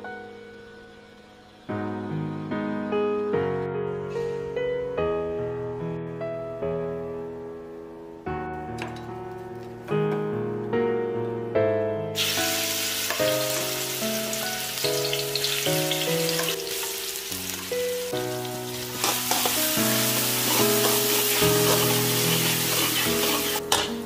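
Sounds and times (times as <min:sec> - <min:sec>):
piano music: 0:00.0 - 0:24.0
onion sizzling in hot oil: 0:12.2 - 0:23.8
spatula stirring in wok: 0:19.0 - 0:23.6.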